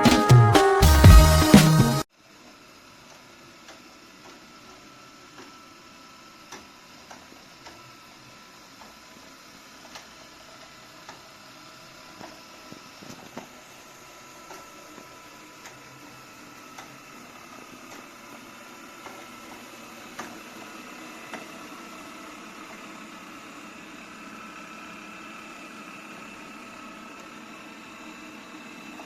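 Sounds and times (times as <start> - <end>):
robot vacuum motor whine: 7.9 - 29.0.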